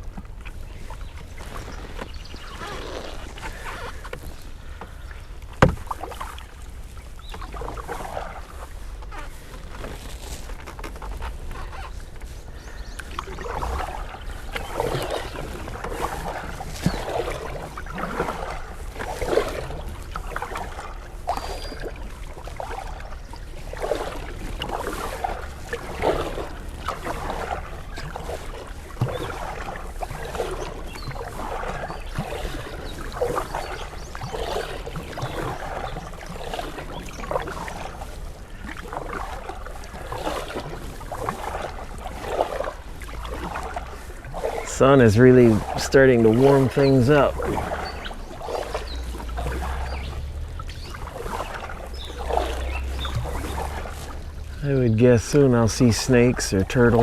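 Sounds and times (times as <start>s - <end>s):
paddle knocking against hull: 0.0s - 57.0s
paddle splashing through water: 0.0s - 57.0s.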